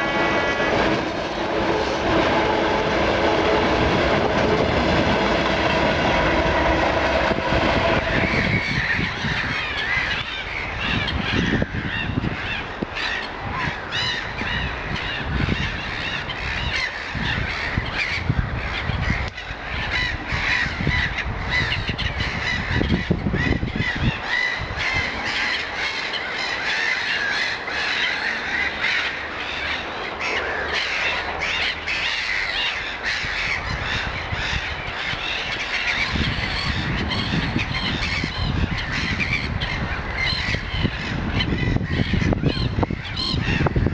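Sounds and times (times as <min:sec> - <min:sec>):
low rumbles: 0:00.0 - 0:16.6
birds calling in chorus: 0:07.7 - 0:43.9
crow-like cawing: 0:19.1 - 0:36.0.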